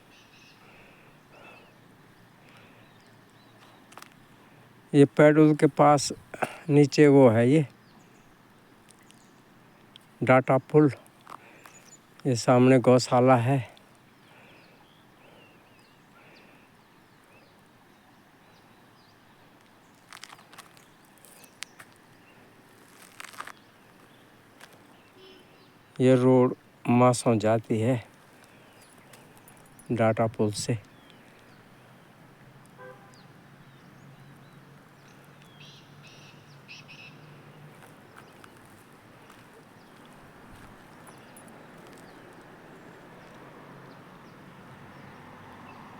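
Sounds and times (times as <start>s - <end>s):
bird chirps and warbles: 0.0s - 4.0s, 14.1s - 22.5s, 28.5s - 31.8s, 32.7s - 45.9s
quiet rural ambience: 0.0s - 45.9s
faint bird chirps: 24.8s - 26.0s, 32.8s - 37.4s.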